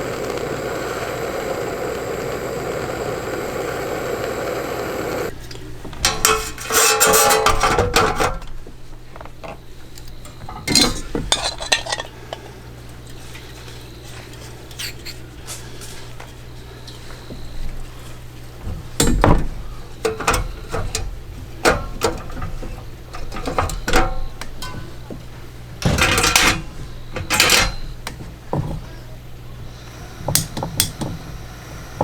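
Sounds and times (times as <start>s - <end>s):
steady rushing noise: 0.0s - 5.3s
dishes and utensils clattering: 6.0s - 8.5s, 10.3s - 12.4s, 20.1s - 25.1s, 25.8s - 27.9s.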